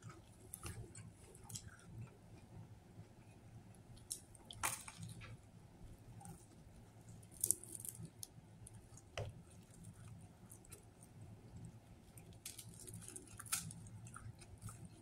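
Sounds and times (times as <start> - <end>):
person chewing: 11.6 - 15.0.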